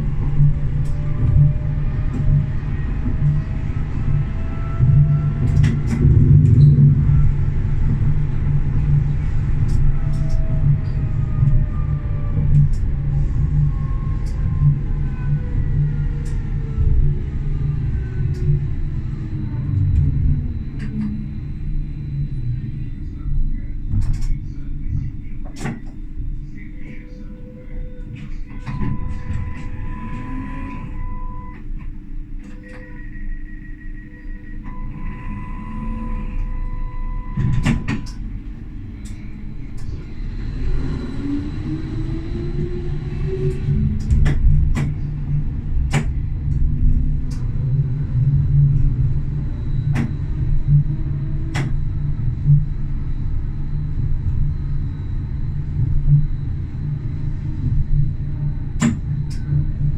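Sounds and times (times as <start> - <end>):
faint motor whine: 0.0 - 59.9
tram wheels rumbling on rail: 0.0 - 59.9
traction motor whine rising: 28.8 - 31.6, 33.9 - 38.2, 39.4 - 44.2.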